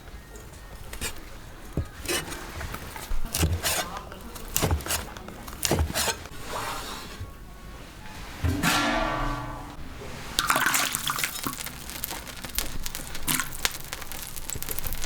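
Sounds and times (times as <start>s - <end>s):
scraping on wood: 0.6s - 7.4s
soft rubbing stroke: 5.7s - 10.7s.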